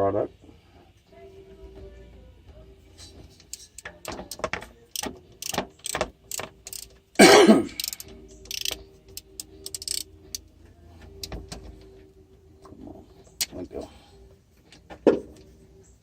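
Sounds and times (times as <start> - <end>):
hand ratchet clicking: 3.4 - 7.0, 7.7 - 10.4.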